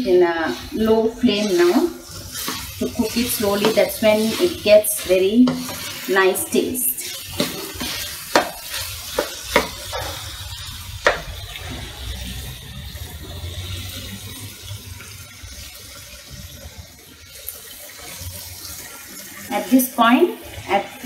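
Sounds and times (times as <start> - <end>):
meat sizzling in a frying pan: 0.0 - 21.0
spatula scraping a pan: 0.4 - 10.4.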